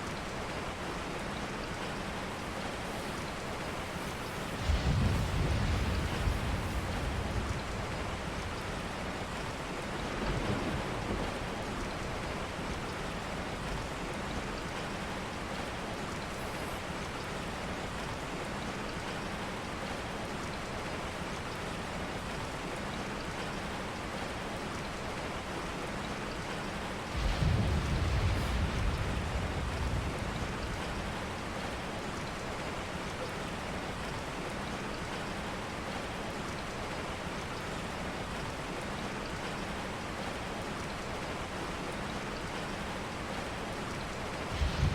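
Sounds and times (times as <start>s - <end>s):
rain falling: 0.0s - 44.9s
low thunder rumbles: 2.9s - 13.8s, 27.1s - 32.5s, 44.0s - 44.9s.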